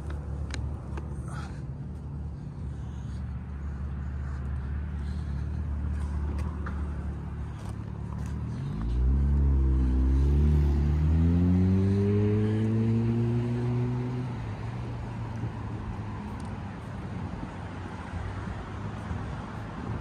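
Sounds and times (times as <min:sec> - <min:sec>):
vehicle engine humming: 0:00.0 - 0:20.0
vehicle accelerating past: 0:08.2 - 0:15.1.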